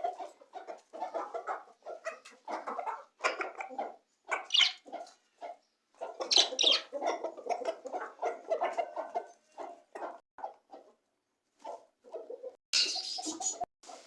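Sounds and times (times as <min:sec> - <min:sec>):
budgies chirping and chattering: 0:04.4 - 0:04.9, 0:06.2 - 0:06.9, 0:12.8 - 0:13.6
shrill bird calls: 0:04.5 - 0:04.8, 0:06.3 - 0:06.9.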